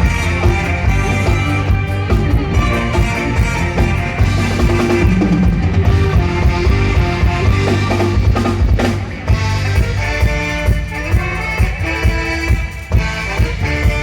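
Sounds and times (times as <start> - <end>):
drum kit beat: 0.0 - 14.0
sustained pitched instruments: 0.0 - 14.0.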